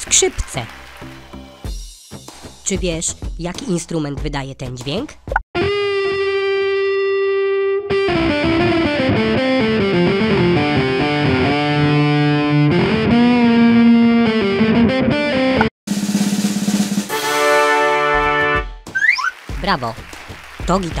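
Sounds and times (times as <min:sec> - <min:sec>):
distorted electric guitar: 0:05.6 - 0:16.4.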